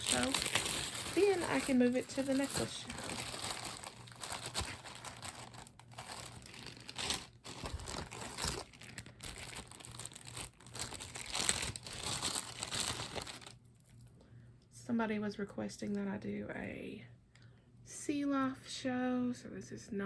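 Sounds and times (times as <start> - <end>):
plastic bags crinkling: 0.0 - 13.6.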